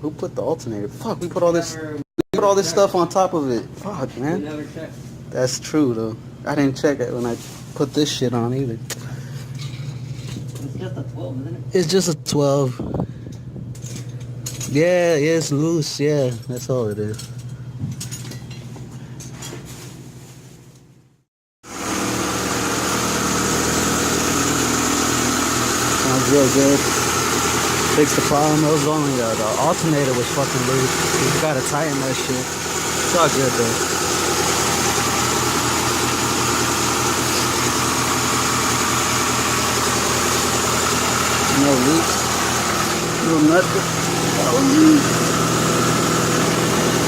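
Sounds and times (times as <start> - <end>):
car engine idling: 21.9 - 47.0.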